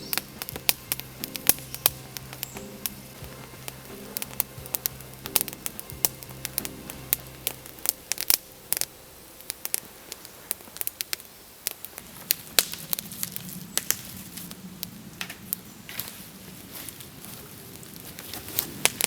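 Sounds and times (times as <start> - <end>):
faint low hum: 0.0 - 12.2
sharp crackles and clicks: 0.0 - 19.0.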